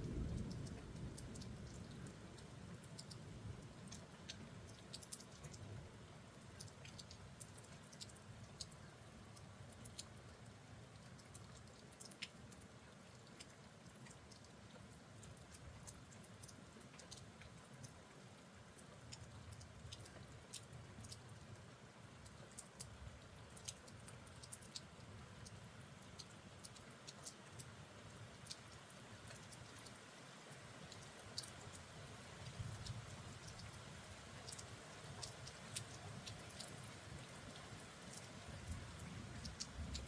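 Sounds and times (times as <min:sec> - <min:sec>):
light raindrops ticking: 0:00.0 - 0:40.0.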